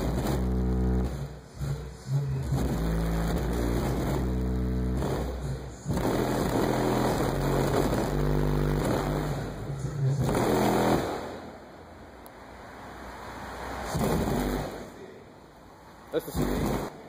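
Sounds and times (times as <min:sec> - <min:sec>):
bass-heavy music on car subwoofers: 0:00.0 - 0:12.0, 0:13.8 - 0:15.2, 0:16.2 - 0:17.0.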